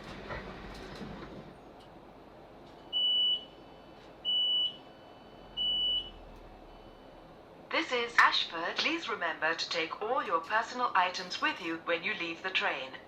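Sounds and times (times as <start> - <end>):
train door warning beeps: 2.8 - 3.6, 4.2 - 6.2.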